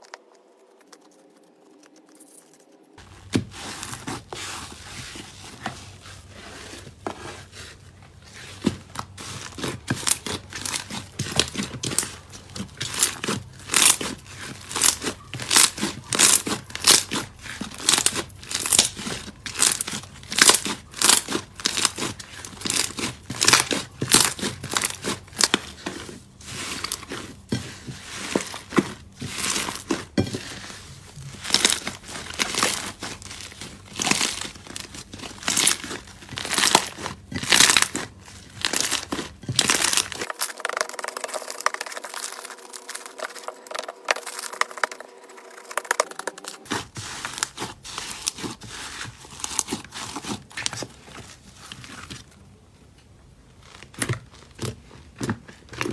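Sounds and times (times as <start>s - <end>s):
slime crackling and popping: 8.6s - 50.8s.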